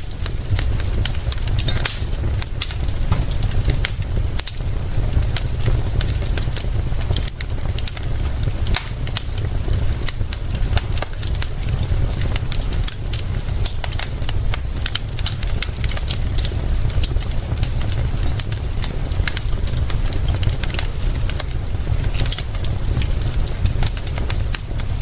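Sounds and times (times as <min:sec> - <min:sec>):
rain hissing: 0:00.0 - 0:25.0
wood fire crackling: 0:00.0 - 0:25.0.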